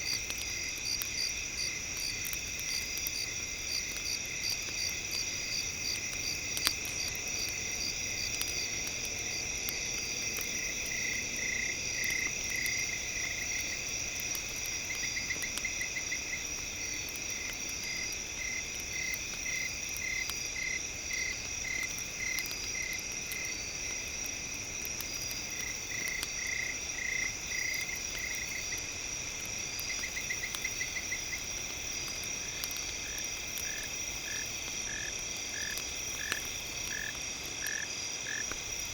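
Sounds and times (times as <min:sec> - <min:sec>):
campfire crackling: 0:00.0 - 0:38.9
night insects trilling: 0:00.0 - 0:38.9.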